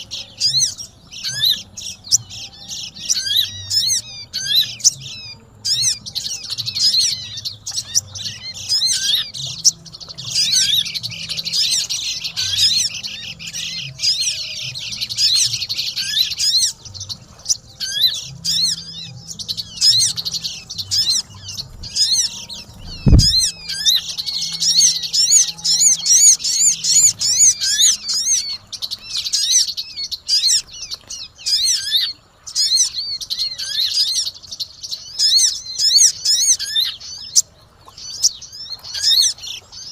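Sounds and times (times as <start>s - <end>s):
songbirds chirping and trilling: 0.0s - 39.9s
low thump: 22.8s - 23.6s.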